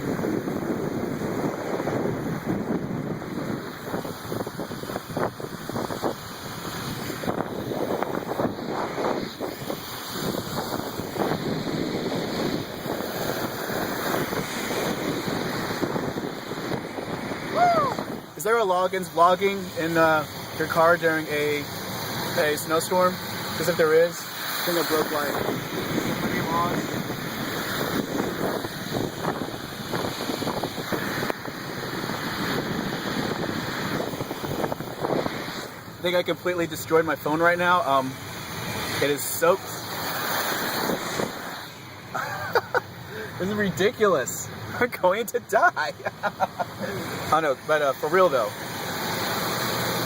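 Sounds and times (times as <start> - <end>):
wind on microphone: 0.0 - 18.5, 23.6 - 37.1, 38.1 - 44.9
road noise: 0.0 - 50.0.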